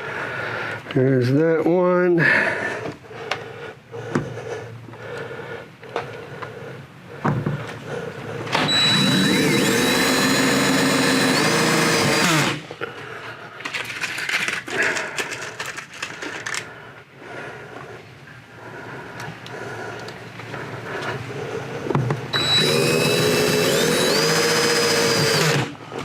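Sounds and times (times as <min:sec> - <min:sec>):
knocks and handling noise: 0:07.2 - 0:07.8, 0:13.6 - 0:16.7, 0:21.8 - 0:22.3
cordless drill whining: 0:08.5 - 0:12.7, 0:22.3 - 0:26.0.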